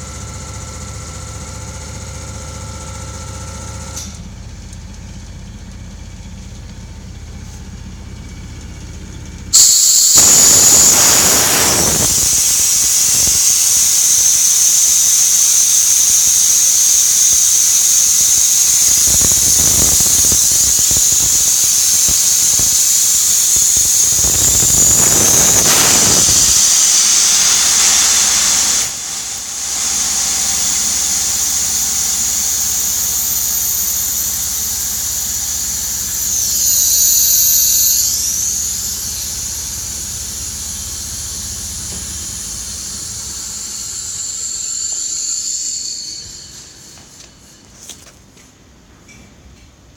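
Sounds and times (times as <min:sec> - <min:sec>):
compressor humming: 0:00.0 - 0:48.1
compressed air hissing: 0:09.5 - 0:47.9.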